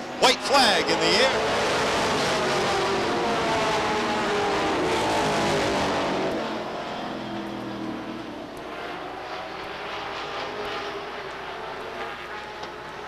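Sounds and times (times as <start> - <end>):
stock car engines racing: 0.0 - 13.0.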